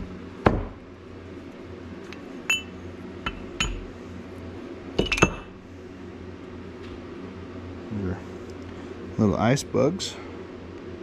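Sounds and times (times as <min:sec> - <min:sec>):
ringing clinks of hard objects: 0:02.5 - 0:03.8.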